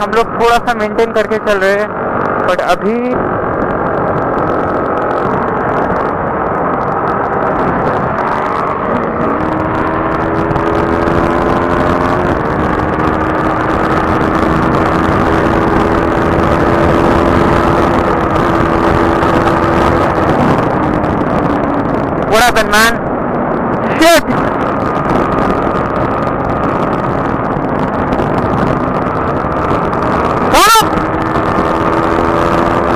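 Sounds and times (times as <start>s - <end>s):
motorcycle engine cruising: 0.0s - 32.9s
wind and road rush: 0.0s - 32.9s.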